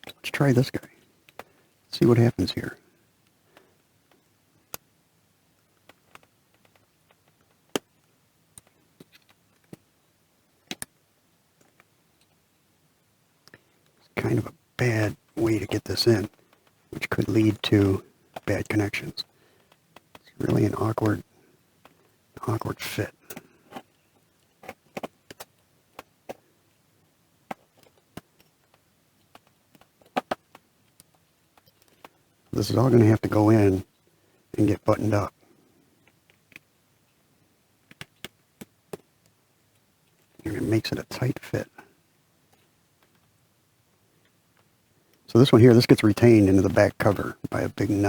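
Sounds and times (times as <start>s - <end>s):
plastic and metal parts clicking: 5.8s - 7.9s.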